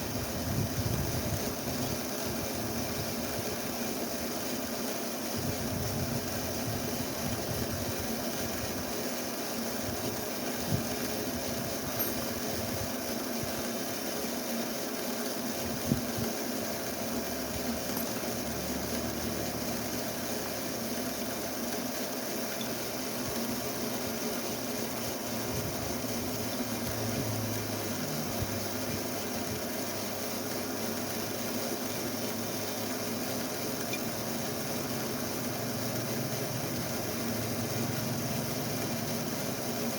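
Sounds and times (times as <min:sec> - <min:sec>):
mechanical hum: 0:00.0 - 0:39.9.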